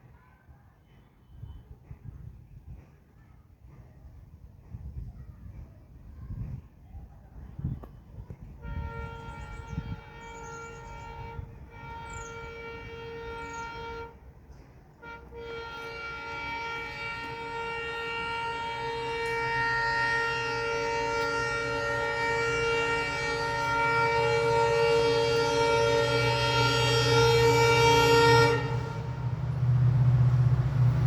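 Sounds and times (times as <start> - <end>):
low rumble of train: 0.0 - 31.0
train horn blasts: 7.6 - 31.0.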